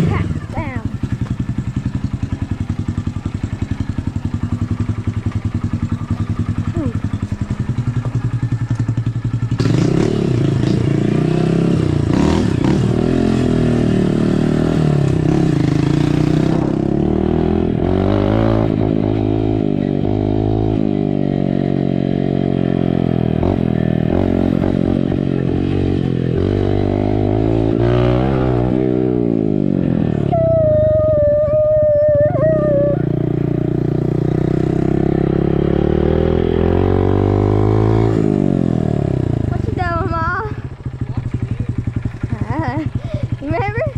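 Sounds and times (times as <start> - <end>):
dirt bike engine revving: 0.0 - 41.1.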